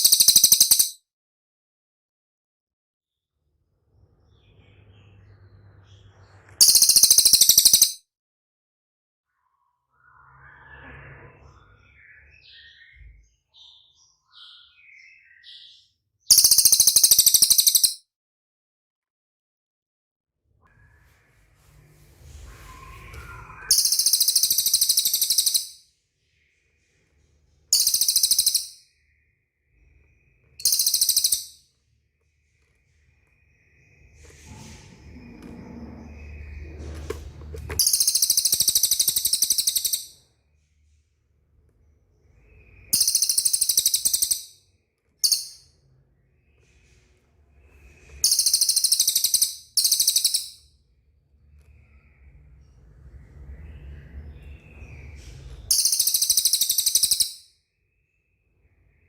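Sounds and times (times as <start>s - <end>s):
bird chattering trills: 6.6s - 7.9s, 16.3s - 18.0s, 23.7s - 25.7s, 27.8s - 28.8s, 30.6s - 31.6s
small bird buzzy trills: 27.7s - 28.8s, 30.6s - 31.6s.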